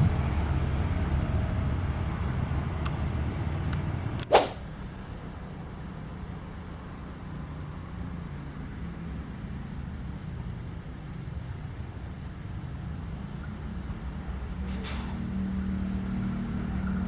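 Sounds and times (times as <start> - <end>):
distant vehicle rumble: 0.0 - 7.9, 13.6 - 17.0.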